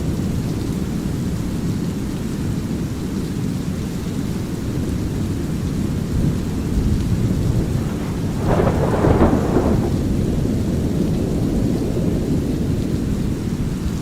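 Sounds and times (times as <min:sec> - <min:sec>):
light rain: 0:00.0 - 0:14.0
thunder rolling: 0:06.5 - 0:11.0
low rumble: 0:07.2 - 0:10.2.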